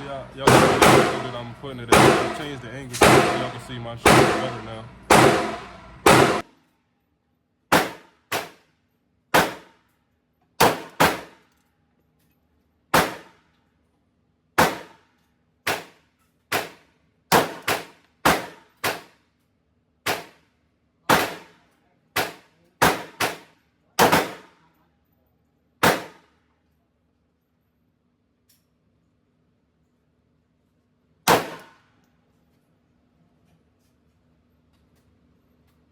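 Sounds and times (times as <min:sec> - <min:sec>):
pistol shots echoing indoors: 0:00.0 - 0:06.4, 0:07.7 - 0:08.7, 0:09.3 - 0:09.9, 0:10.6 - 0:11.5, 0:12.9 - 0:13.4, 0:14.6 - 0:19.2, 0:21.1 - 0:24.7, 0:25.8 - 0:26.4, 0:31.2 - 0:31.8.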